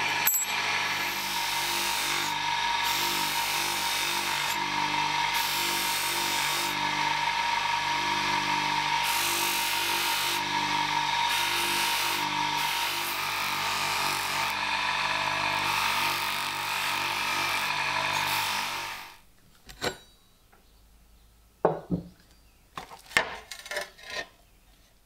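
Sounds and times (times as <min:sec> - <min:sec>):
power tool running: 0:00.0 - 0:19.2.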